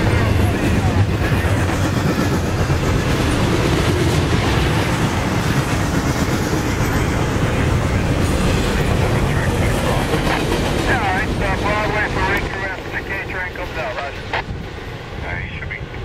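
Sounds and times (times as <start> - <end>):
freight train wheels rumbling on rail: 0.0 - 16.0.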